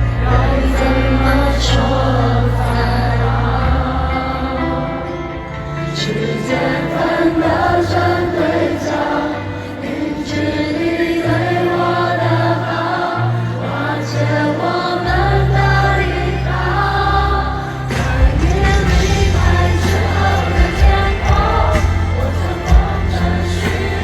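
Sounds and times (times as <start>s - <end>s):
choir-like singing: 0.0s - 24.0s
live pop concert music: 0.0s - 24.0s
deep bass: 17.9s - 24.0s.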